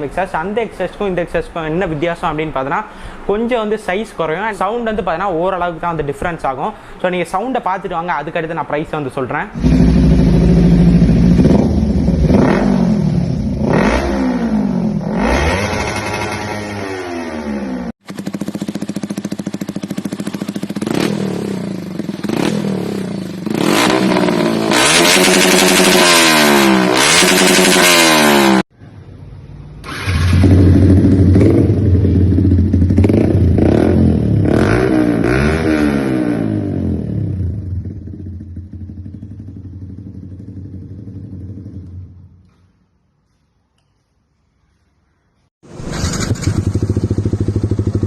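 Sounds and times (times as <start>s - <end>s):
motorcycle engine revving: 9.6s - 28.7s, 29.8s - 42.4s, 45.6s - 48.0s.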